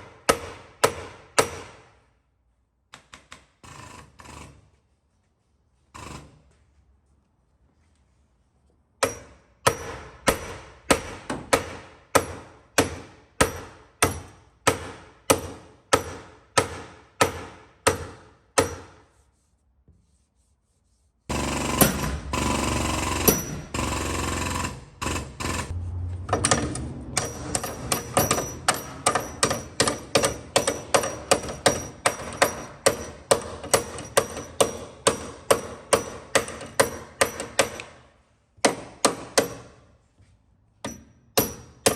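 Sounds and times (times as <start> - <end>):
hammer striking sheet metal: 9.0 - 19.1, 21.3 - 23.9, 25.5 - 38.0, 40.8 - 41.9
steady mechanical noise: 21.3 - 34.6.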